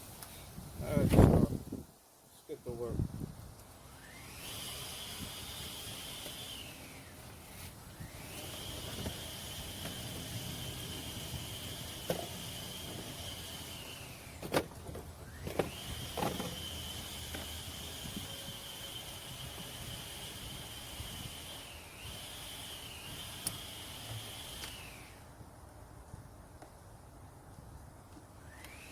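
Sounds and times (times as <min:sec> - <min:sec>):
small electric motor whining: 0:03.7 - 0:25.4, 0:28.2 - 0:28.9
sharp clicks: 0:23.4 - 0:23.6.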